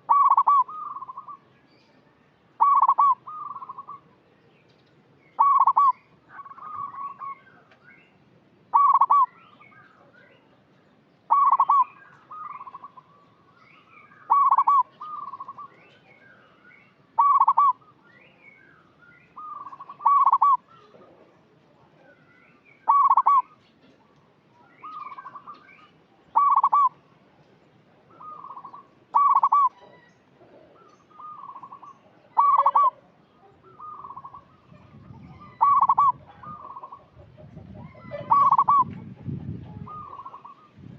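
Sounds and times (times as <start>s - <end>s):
dove cooing: 0.0s - 1.4s, 2.6s - 4.0s, 5.4s - 7.4s, 8.7s - 9.3s, 11.3s - 13.2s, 14.3s - 15.8s, 17.2s - 17.8s, 19.4s - 21.3s, 22.9s - 23.5s, 26.3s - 27.0s, 28.1s - 40.7s.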